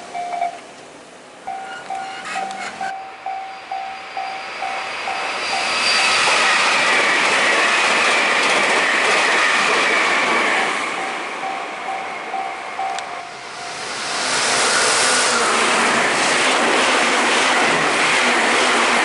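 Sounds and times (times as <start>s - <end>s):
level-crossing warning bell: 0.0s - 0.6s, 1.4s - 6.9s, 10.9s - 14.2s
train passing: 0.0s - 19.0s.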